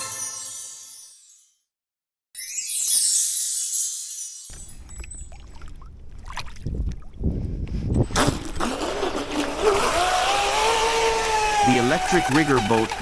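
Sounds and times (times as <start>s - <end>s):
electric boat motor whining: 8.6s - 13.0s.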